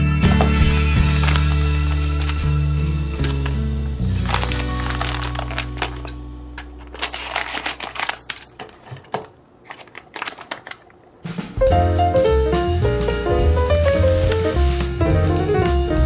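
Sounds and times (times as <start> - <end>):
background music: 0.0 - 8.1, 11.3 - 16.0
clicks and crinkles of objects: 0.4 - 11.0.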